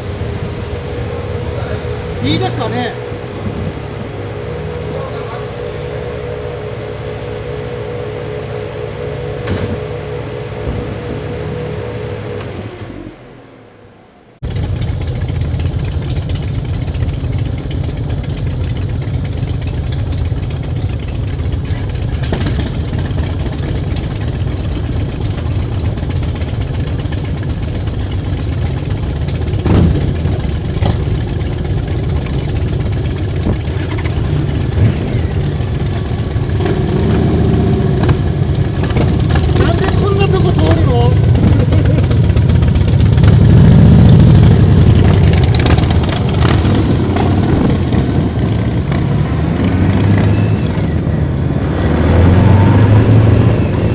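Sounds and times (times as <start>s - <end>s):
motorcycle engine rumbling: 0.0s - 53.9s.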